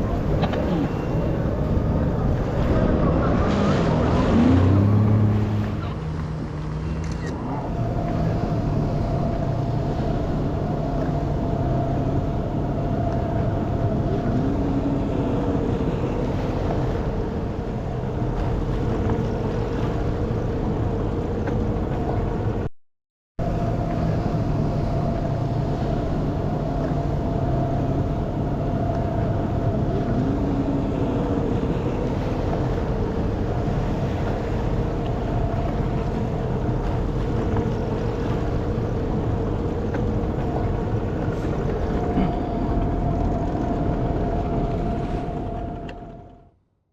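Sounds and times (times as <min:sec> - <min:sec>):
jet ski engine whine: 0:00.0 - 0:22.7, 0:23.4 - 0:46.6
low rumble: 0:00.0 - 0:22.7, 0:23.4 - 0:46.8.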